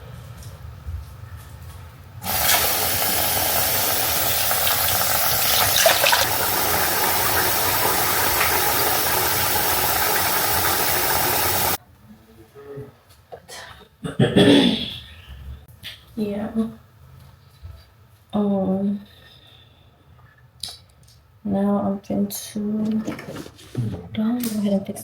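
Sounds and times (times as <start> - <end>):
water running from a tap: 2.2 - 11.8.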